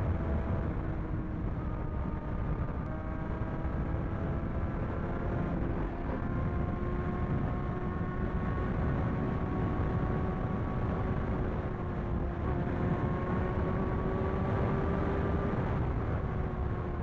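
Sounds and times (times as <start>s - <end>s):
motorcycle engine cruising: 0.0s - 17.0s
wind and road noise: 0.0s - 17.0s.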